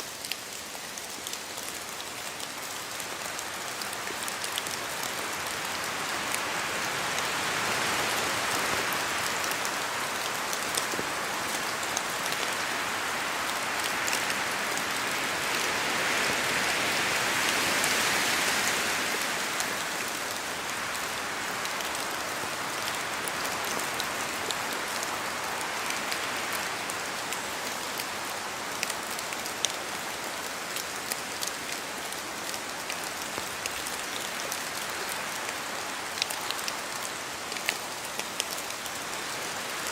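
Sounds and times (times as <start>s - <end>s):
steady rain: 0.0s - 39.9s
wind through branches: 0.0s - 39.9s.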